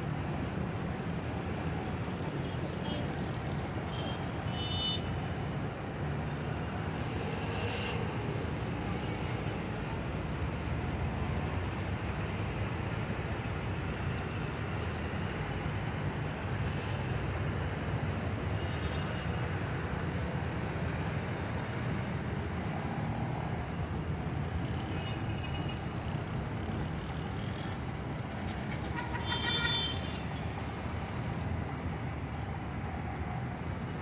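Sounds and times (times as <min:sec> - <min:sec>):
train horn toots: 0:28.9 - 0:30.0.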